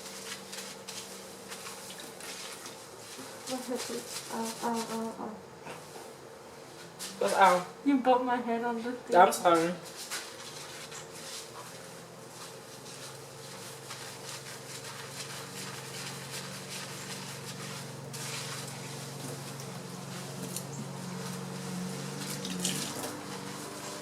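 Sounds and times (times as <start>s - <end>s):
low motor hum: 10.3s - 24.0s.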